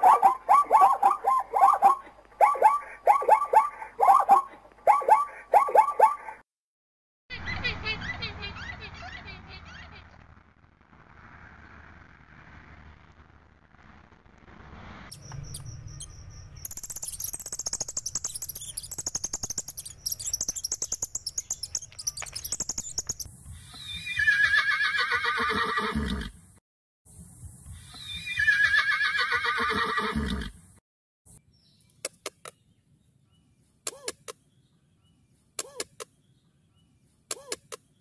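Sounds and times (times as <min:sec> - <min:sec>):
high-pitched chirping: 0:00.0 - 0:06.4, 0:15.1 - 0:24.0
horse whinnying: 0:23.9 - 0:26.4, 0:28.2 - 0:30.6.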